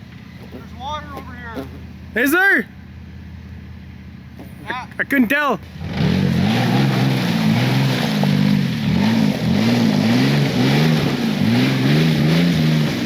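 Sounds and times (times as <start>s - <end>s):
truck engine revving: 5.6s - 13.0s.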